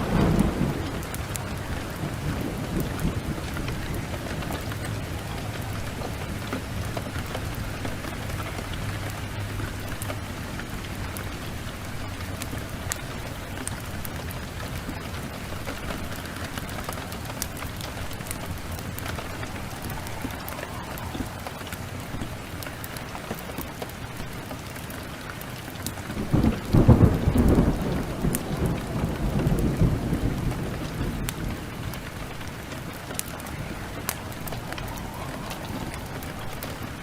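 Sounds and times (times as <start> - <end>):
rain falling: 0.0 - 37.0
wood fire crackling: 0.0 - 37.0.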